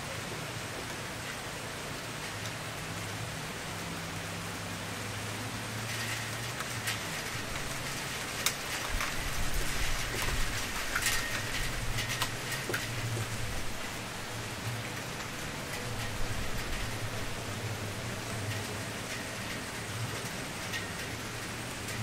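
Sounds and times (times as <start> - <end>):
wood fire crackling and popping: 6.0 - 22.0.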